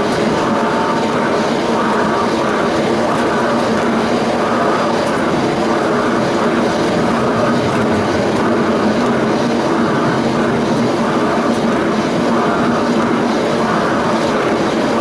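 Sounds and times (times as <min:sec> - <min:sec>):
motor hum: 0:00.0 - 0:15.0
tram wheels rumbling on rails: 0:00.0 - 0:15.0.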